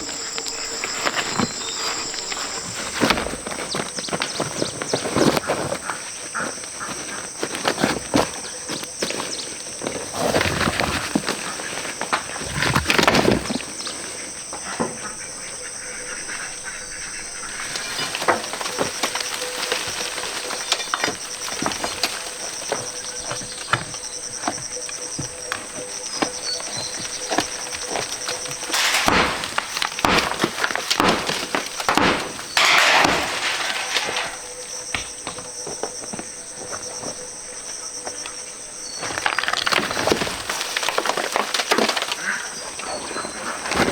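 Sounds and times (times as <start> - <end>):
knocks and rustles of handwork: 0.0 - 14.2, 17.4 - 35.9
insects chorus: 0.0 - 43.9
scraping bursts: 26.3 - 34.8.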